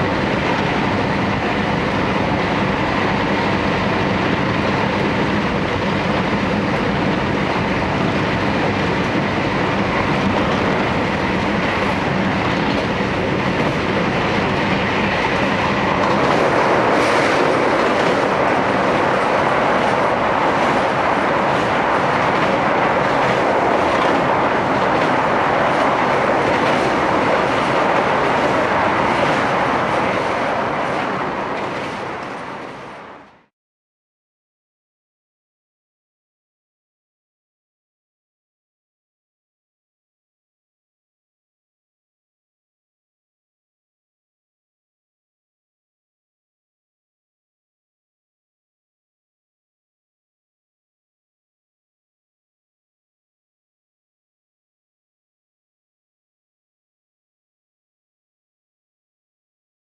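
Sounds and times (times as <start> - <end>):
train wheels rumbling on rail: 0.0 - 33.5.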